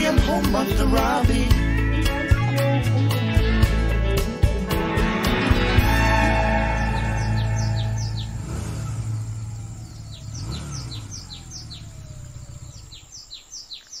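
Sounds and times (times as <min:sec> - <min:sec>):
song: 0:00.0 - 0:08.4
birds chirping: 0:05.7 - 0:14.0.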